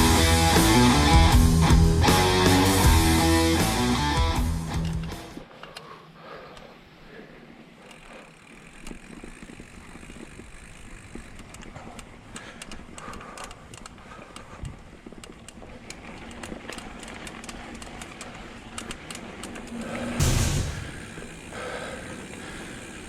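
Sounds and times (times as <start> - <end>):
bike tyres on dirt trail: 0.0 - 23.0
bike clicks and rattles: 0.1 - 23.0
thump: 20.1 - 21.1.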